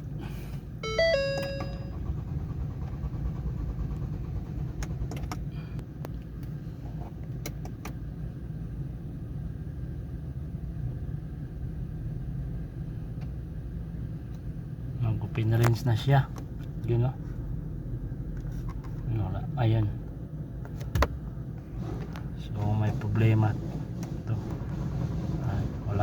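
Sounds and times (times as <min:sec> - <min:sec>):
dashboard chime: 0:00.8 - 0:02.0
engine cranking without starting: 0:01.1 - 0:05.6, 0:21.7 - 0:26.0.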